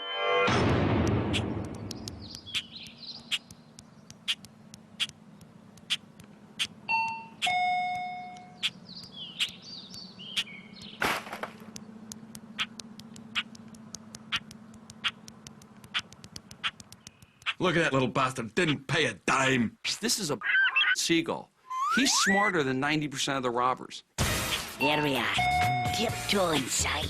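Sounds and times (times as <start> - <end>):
steady low hum: 0.7 - 17.4
sharp clicks: 0.9 - 17.7
seagull calling: 1.3 - 5.2, 5.8 - 7.6, 8.4 - 11.1, 12.4 - 17.6, 20.4 - 21.0
two-note door chime: 6.9 - 8.5.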